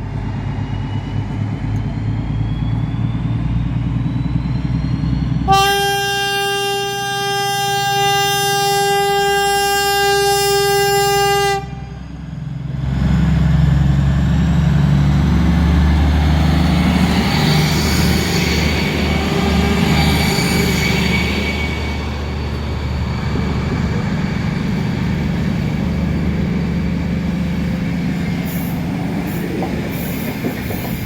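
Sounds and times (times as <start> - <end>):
train rumbling: 0.0 - 31.0
train horn long note: 5.5 - 12.2, 17.8 - 27.4.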